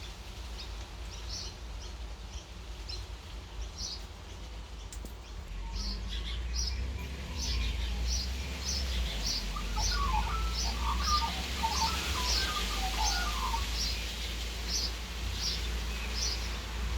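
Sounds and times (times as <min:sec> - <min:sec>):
bird lower warbling notes: 0:05.5 - 0:14.0.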